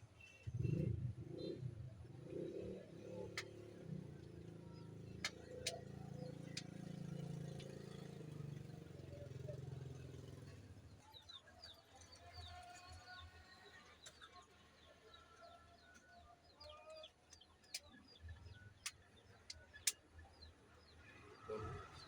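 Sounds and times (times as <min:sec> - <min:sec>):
faint birdsong chirps: 0:00.0 - 0:22.0.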